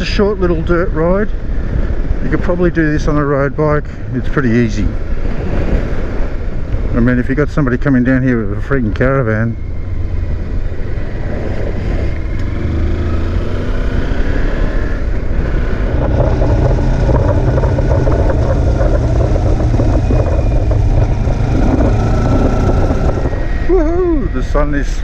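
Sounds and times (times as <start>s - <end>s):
low wind rumble: 0.0s - 25.0s
motorcycle engine running: 9.6s - 24.3s.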